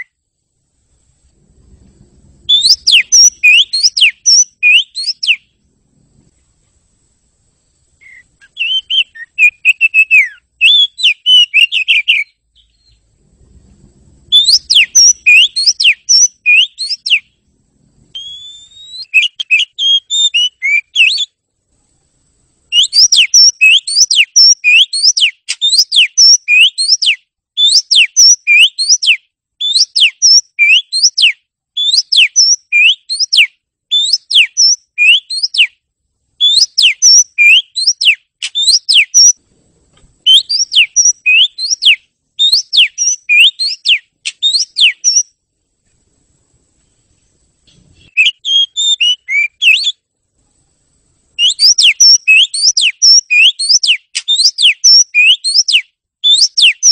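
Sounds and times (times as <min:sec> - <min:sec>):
magpie-robin singing whistled phrases: 0:02.5 - 0:05.5, 0:08.0 - 0:13.0, 0:14.3 - 0:17.3, 0:18.1 - 0:21.4, 0:22.7 - 0:35.8, 0:36.4 - 0:39.4, 0:40.2 - 0:45.3, 0:48.0 - 0:50.0, 0:51.4 - 0:56.9.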